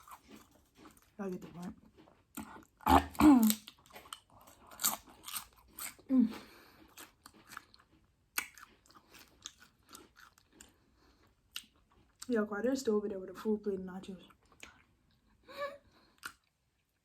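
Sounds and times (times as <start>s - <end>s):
crunching chips: 0.0s - 12.3s.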